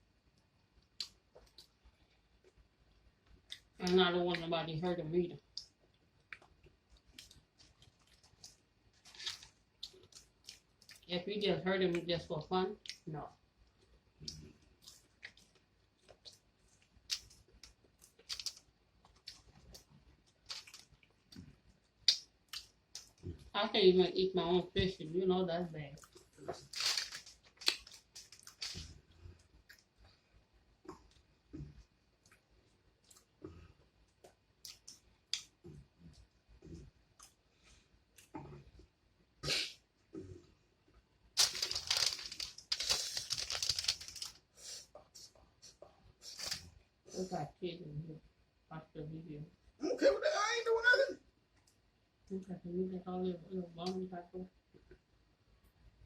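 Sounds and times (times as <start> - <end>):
mouth chewing food: 5.5 - 11.1, 12.8 - 23.5, 25.9 - 30.2, 30.8 - 37.5
food crackling and tearing: 6.3 - 11.1, 17.0 - 21.4, 26.0 - 29.0, 41.4 - 44.5.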